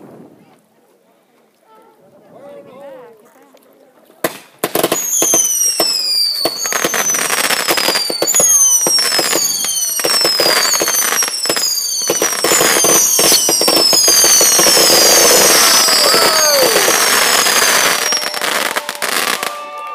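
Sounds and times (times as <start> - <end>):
fireworks bangs and crackles: 4.2 - 19.9
fireworks whistles falling in pitch: 4.6 - 19.7.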